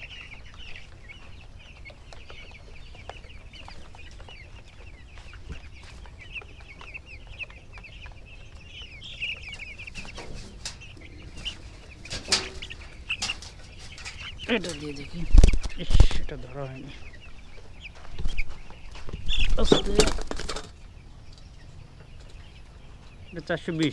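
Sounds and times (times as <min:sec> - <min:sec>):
chicks peeping: 0:00.0 - 0:23.9
scuffle: 0:09.5 - 0:20.8.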